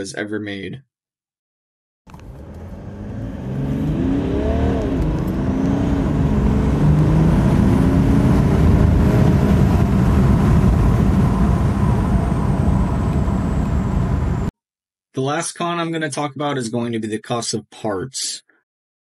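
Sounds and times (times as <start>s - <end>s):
diesel engine accelerating: 2.1s - 14.5s.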